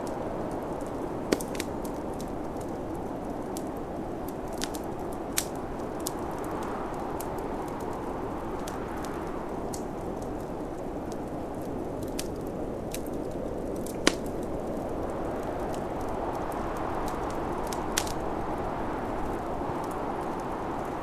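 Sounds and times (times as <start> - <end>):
snowstorm wind whooshing: 0.0 - 21.0
wood fire crackling and popping: 0.0 - 21.0.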